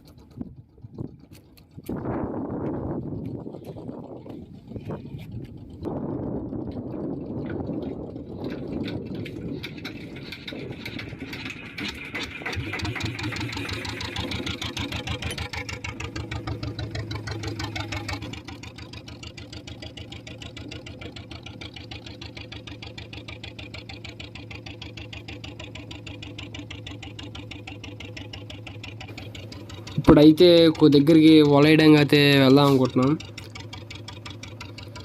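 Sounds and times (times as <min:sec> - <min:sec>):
boat engine pulsing: 0:00.0 - 0:35.0.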